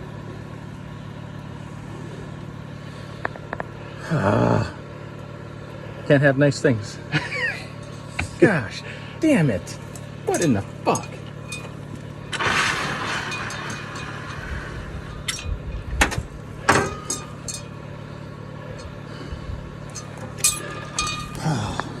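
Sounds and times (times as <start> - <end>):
steady low hum: 0.0 - 22.0
sharp clinks and knocks: 9.9 - 17.9, 19.8 - 21.6.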